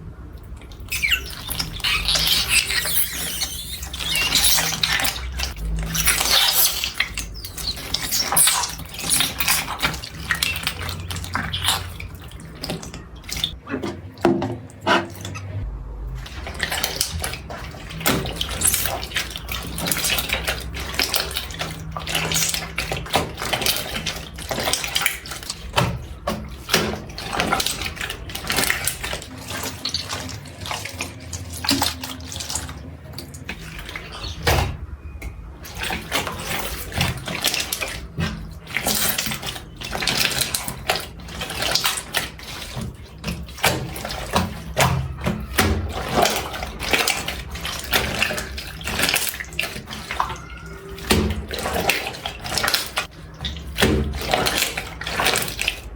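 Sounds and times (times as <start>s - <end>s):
slime squelching and clicking: 0.4s - 13.9s.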